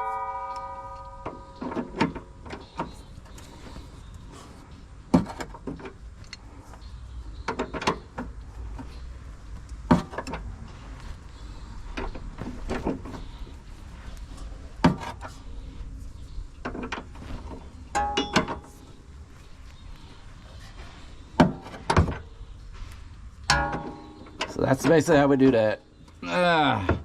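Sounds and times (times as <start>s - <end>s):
metal tools clinking: 17.9s - 18.9s.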